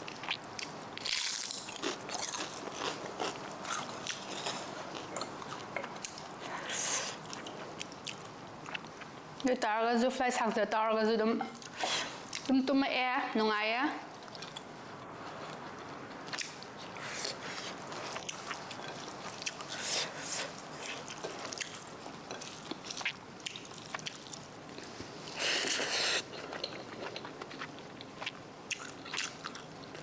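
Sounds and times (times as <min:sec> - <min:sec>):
person crunching and chewing: 0:00.1 - 0:09.0, 0:16.3 - 0:24.5.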